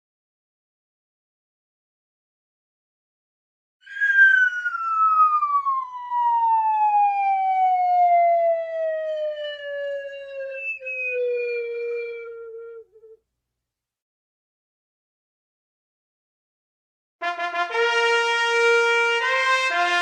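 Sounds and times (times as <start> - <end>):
descending comic whistle tone: 3.8 - 13.2.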